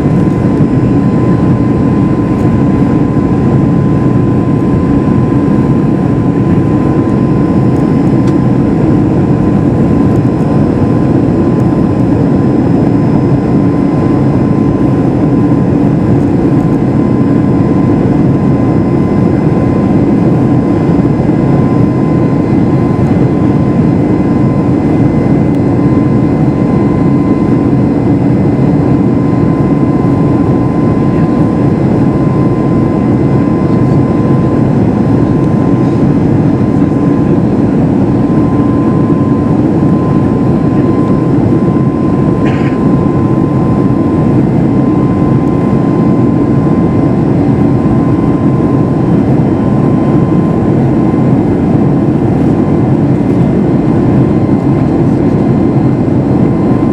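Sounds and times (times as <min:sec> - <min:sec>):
faint steady whine: 0:00.0 - 0:56.9
jet engines and airflow in cabin: 0:00.0 - 0:56.9.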